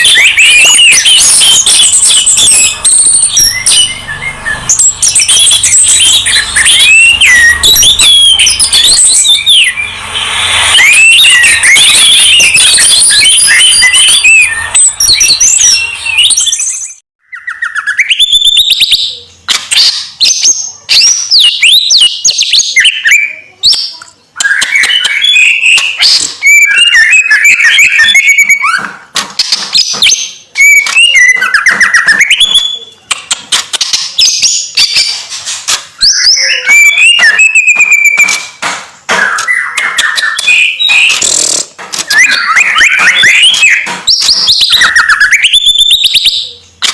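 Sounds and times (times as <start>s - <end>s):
songbirds warbling: 0.0s - 23.5s, 39.3s - 46.7s
whistled bird song phrases: 0.0s - 28.9s, 30.1s - 33.0s, 36.0s - 38.6s, 42.1s - 46.7s.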